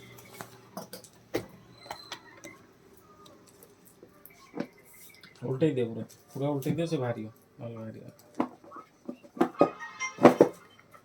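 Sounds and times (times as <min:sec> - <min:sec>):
objects clicking and knocking: 0:08.2 - 0:10.6.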